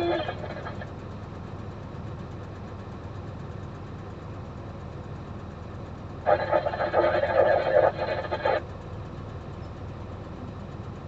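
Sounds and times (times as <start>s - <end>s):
diesel engine idling: 0.0s - 11.0s
loud noisy sound: 6.3s - 8.6s.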